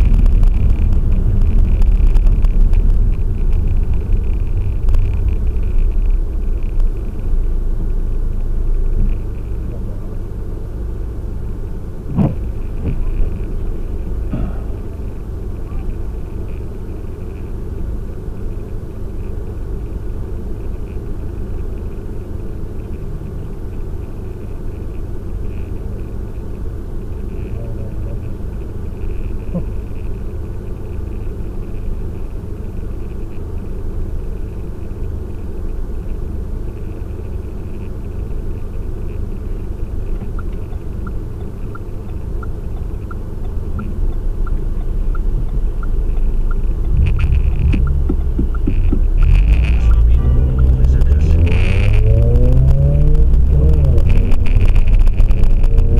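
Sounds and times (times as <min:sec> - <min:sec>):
car engine idling: 0:00.0 - 0:55.9
light regular ticking: 0:28.3 - 0:55.9.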